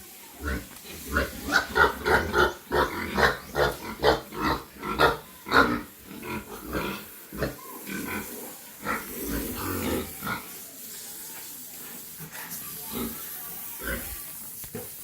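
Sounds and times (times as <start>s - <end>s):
pigs grunting: 0.4s - 10.6s.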